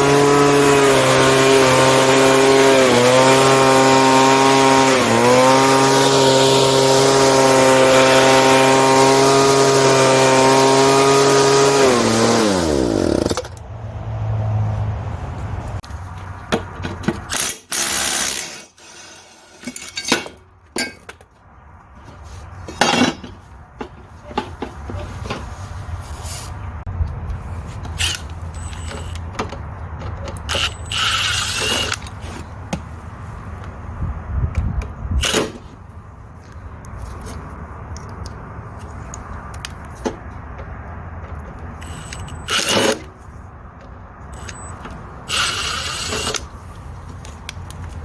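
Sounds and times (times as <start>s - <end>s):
small gasoline engine running: 0.0s - 13.4s
handling knocks and clicks: 16.1s - 17.4s, 19.7s - 25.5s, 27.0s - 30.8s, 36.4s - 43.2s.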